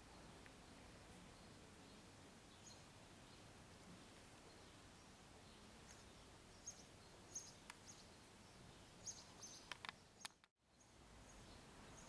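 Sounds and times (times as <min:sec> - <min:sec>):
outdoor background hiss: 0:00.0 - 0:12.0
faint clicks: 0:09.7 - 0:10.5.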